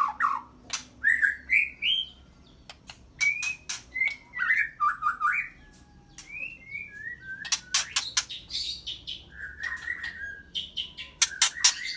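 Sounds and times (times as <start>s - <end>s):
songbird whistling and warbling: 0.0s - 2.2s, 3.2s - 11.9s
sharp clicking bird notes: 0.7s - 1.0s, 2.6s - 4.3s, 7.4s - 8.4s, 11.2s - 11.9s.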